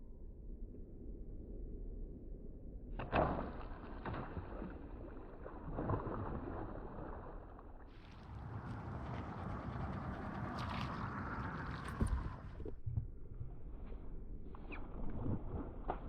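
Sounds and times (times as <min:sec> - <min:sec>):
rumbling boat noise: 0:08.0 - 0:13.0.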